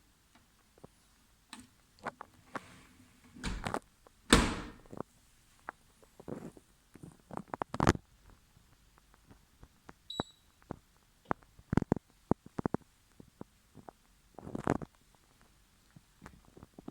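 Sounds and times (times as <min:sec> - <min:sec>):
dishwasher clicks and rattles: 0:03.3 - 0:03.7, 0:04.3 - 0:04.9.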